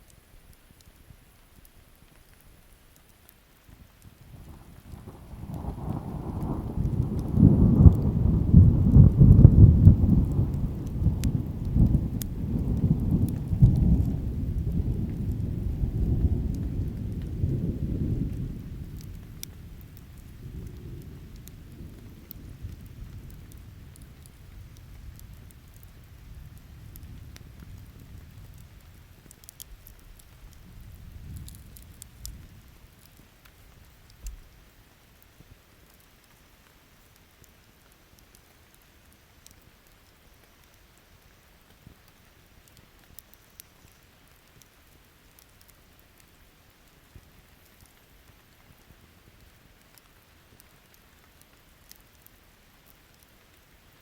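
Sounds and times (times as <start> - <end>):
campfire crackling: 0.0 - 54.0
rain: 0.0 - 54.0
rolling thunder: 4.4 - 29.0, 30.6 - 33.1.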